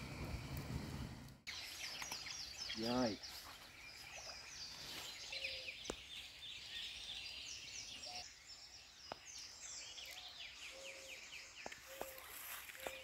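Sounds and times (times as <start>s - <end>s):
birds singing: 0.0s - 13.0s.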